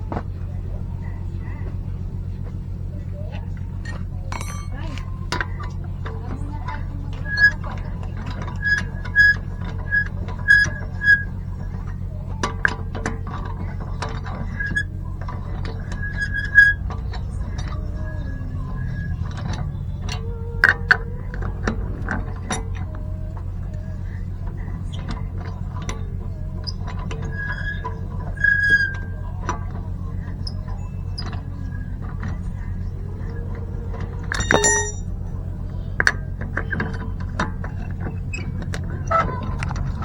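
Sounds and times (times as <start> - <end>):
metallic clicks and clinks: 4.3 - 5.1, 34.4 - 35.1.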